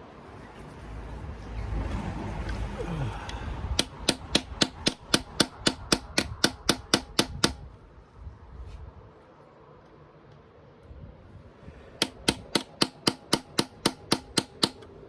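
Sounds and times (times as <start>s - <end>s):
hammer tapping on metal socket: 3.8s - 7.6s, 12.0s - 14.9s.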